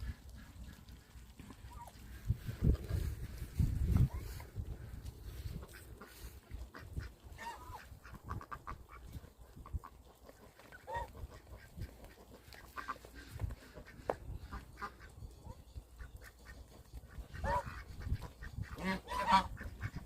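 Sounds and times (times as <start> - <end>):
geese honking: 0.0 - 20.0
duck-like quacks: 5.5 - 15.1, 17.2 - 20.0.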